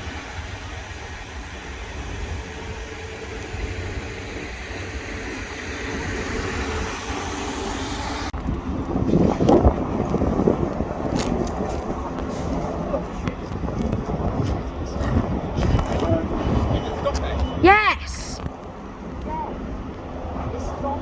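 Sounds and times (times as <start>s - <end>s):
train rumbling: 0.0s - 8.4s.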